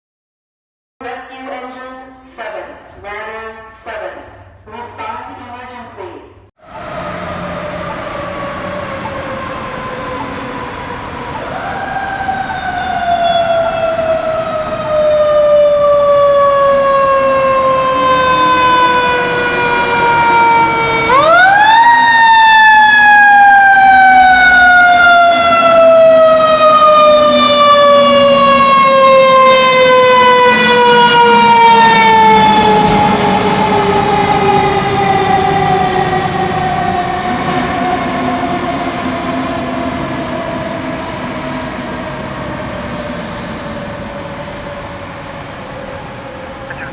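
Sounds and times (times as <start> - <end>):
low engine tone: 6.6 - 15.4
fire engine siren: 6.6 - 46.9.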